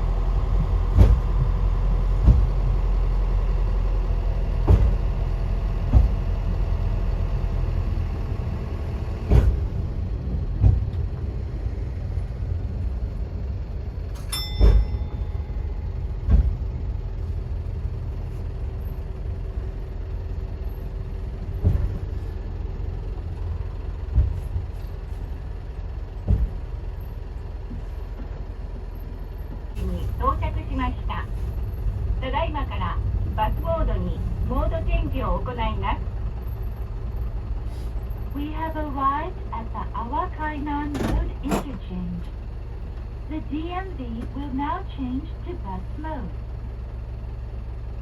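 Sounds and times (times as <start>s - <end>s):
low diesel rumble: 0.0s - 48.0s
wheels knocking on rails: 0.5s - 2.8s, 9.2s - 11.4s, 14.0s - 17.2s.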